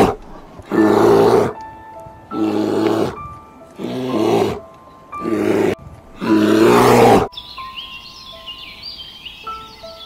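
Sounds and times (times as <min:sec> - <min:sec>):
bear bawling: 0:00.0 - 0:01.6, 0:02.3 - 0:07.3.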